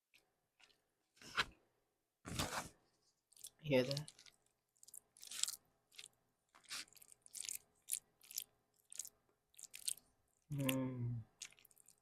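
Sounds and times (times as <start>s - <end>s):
crispy fish crunching: 3.3s - 10.5s, 11.3s - 12.0s.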